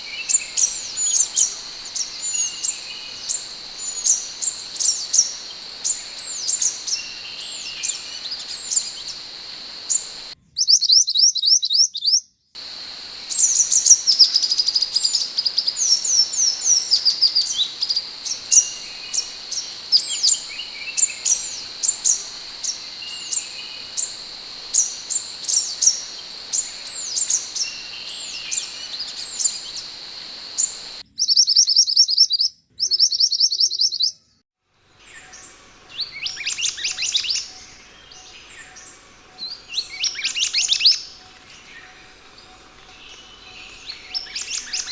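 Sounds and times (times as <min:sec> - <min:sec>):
high insect-like whine: 0:00.0 - 0:10.4, 0:12.6 - 0:31.0, 0:35.0 - 0:44.8.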